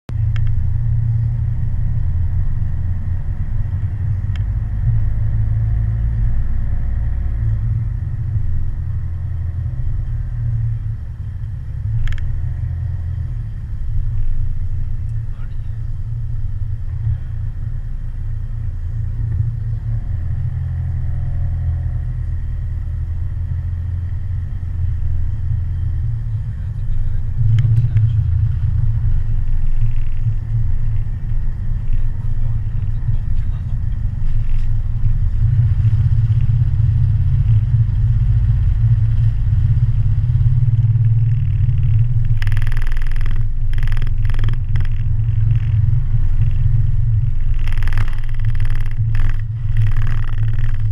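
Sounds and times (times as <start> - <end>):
vehicle rumbling: 0.0 - 50.9
burst of clatter: 46.4 - 50.9.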